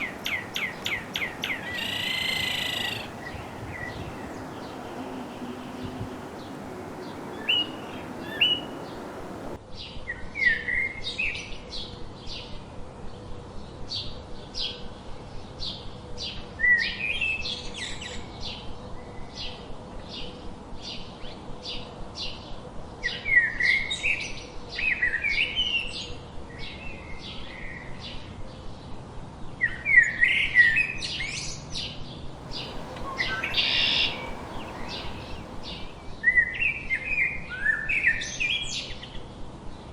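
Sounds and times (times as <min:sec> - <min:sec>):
songbirds chirping: 0:00.0 - 0:09.6, 0:32.4 - 0:36.2
whistled bird song phrases: 0:00.0 - 0:09.6, 0:32.4 - 0:36.2.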